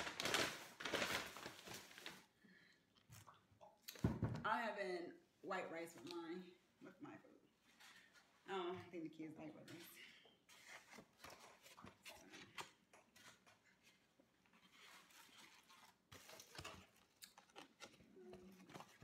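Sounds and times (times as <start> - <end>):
chewing and crunching: 16.4 - 19.0.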